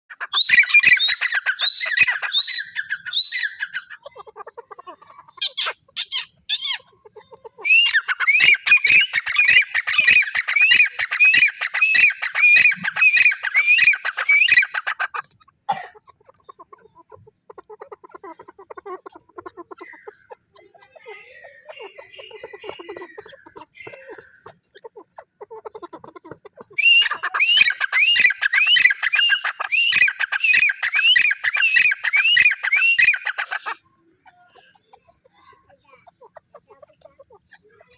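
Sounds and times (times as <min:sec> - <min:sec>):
francolins shrill calls: 0:00.1 - 0:04.0, 0:07.6 - 0:15.2, 0:19.5 - 0:24.6, 0:26.6 - 0:33.8.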